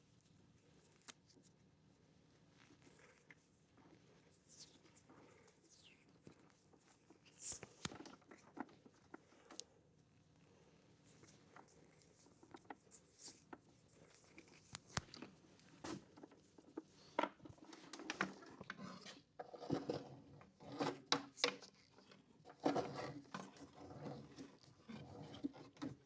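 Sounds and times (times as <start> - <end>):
hands working with wire and tape: 0.0 - 1.6, 2.6 - 9.7, 11.0 - 20.0.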